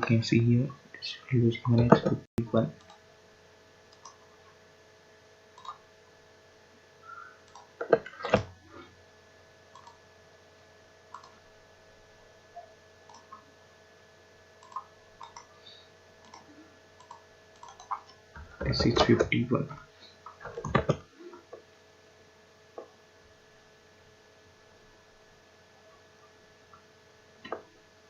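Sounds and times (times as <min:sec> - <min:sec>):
faint steady hum: 0:00.0 - 0:28.0
computer mouse clicking: 0:02.8 - 0:03.0, 0:03.9 - 0:04.3, 0:05.6 - 0:05.8, 0:07.4 - 0:08.4, 0:09.7 - 0:10.0, 0:11.1 - 0:11.4, 0:13.0 - 0:13.4, 0:14.6 - 0:15.5, 0:16.2 - 0:18.2.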